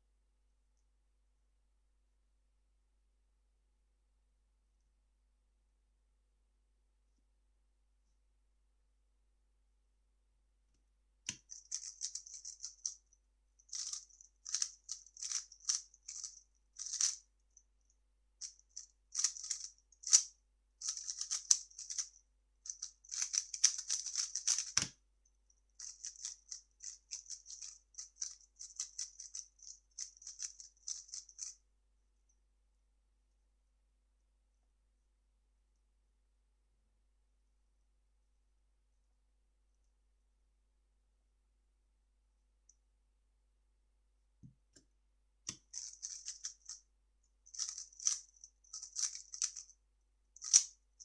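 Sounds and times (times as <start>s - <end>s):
puzzle cube clicking: 23.1s - 25.0s, 50.4s - 50.7s.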